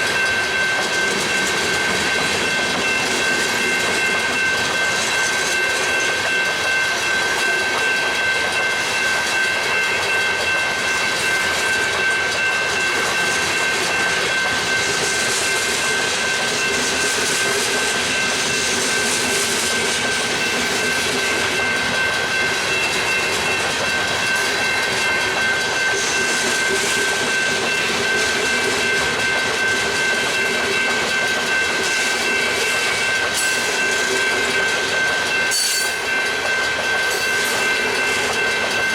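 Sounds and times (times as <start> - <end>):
high-pitched ringing tone: 31.5 - 38.9.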